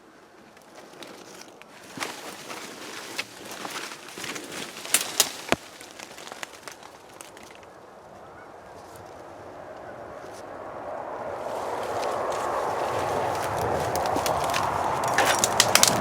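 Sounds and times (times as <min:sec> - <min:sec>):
twigs crackling and snapping: 0:00.5 - 0:08.2, 0:11.4 - 0:16.0
footsteps crashing through dry brush: 0:00.7 - 0:07.8, 0:11.4 - 0:16.0.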